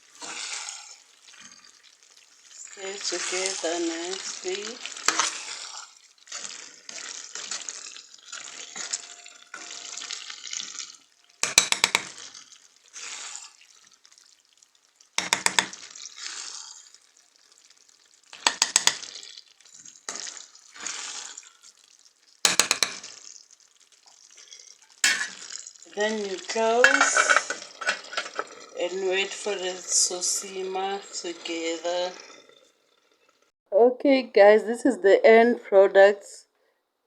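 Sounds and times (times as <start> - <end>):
spoon stirring pasta in a pot: 0.0 - 33.5
spoon clinking against pot: 11.4 - 12.3, 15.2 - 15.9, 18.4 - 19.2, 22.5 - 23.1, 25.0 - 25.5.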